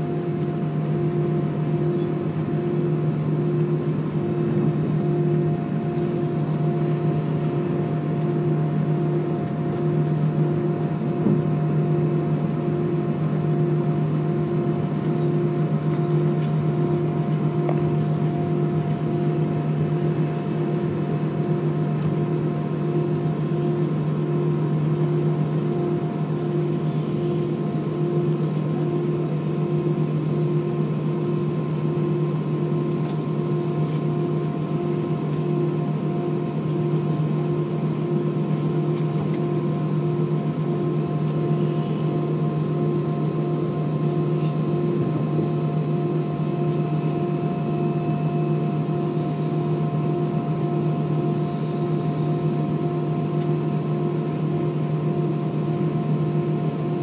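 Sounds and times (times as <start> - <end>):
jet engines droning in cabin: 0.0 - 57.0
low hum: 0.0 - 57.0
faint pulsing tone: 39.6 - 43.3, 44.0 - 53.3.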